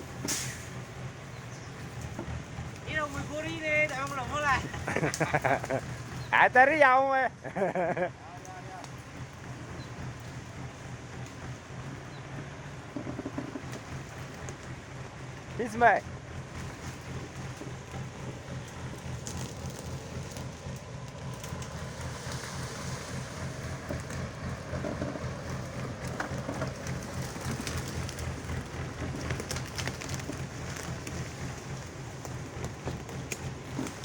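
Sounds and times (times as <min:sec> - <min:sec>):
truck engine running: 0:00.0 - 0:34.0.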